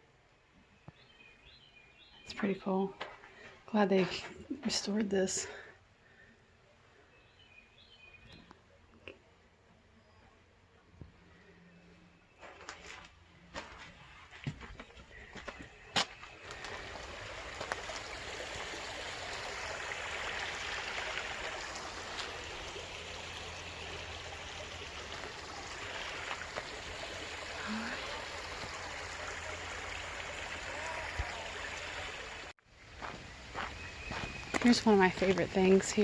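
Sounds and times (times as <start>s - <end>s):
water flowing in a creek: 13.6s - 36.0s.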